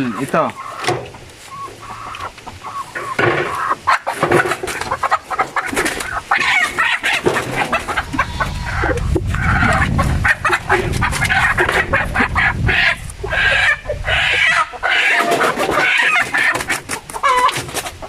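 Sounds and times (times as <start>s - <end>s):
chickens clucking: 0.0s - 18.0s
low rumble: 7.2s - 13.3s.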